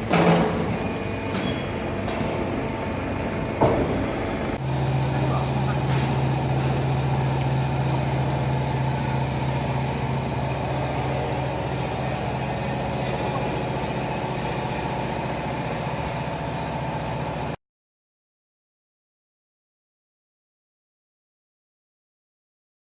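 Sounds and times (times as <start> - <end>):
baler machine drone: 0.0 - 17.6
faint high whine: 4.6 - 17.6.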